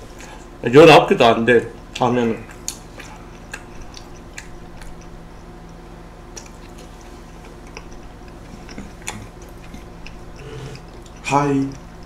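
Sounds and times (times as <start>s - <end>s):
low hum: 1.6s - 12.0s
person chewing: 1.8s - 12.0s
wet mouth clicks: 2.5s - 5.2s.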